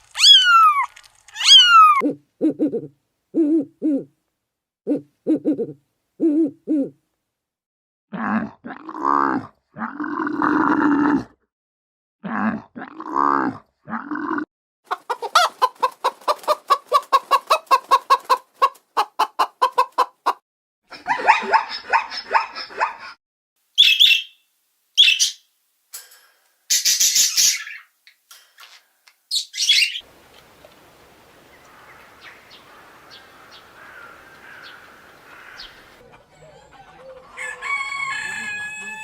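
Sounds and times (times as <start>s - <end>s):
bird clucking pulses: 14.9s - 23.2s, 31.5s - 37.7s
bird squawks and chirps: 23.8s - 24.4s, 25.0s - 25.4s, 26.7s - 27.9s, 29.3s - 30.1s, 31.7s - 36.0s
harsh bird call: 31.7s - 36.0s.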